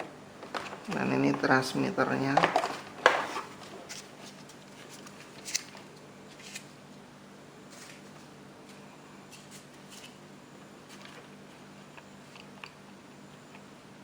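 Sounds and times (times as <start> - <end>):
faint steady hum: 0.0 - 14.0
plastic controller rustles and clicks: 0.4 - 1.6.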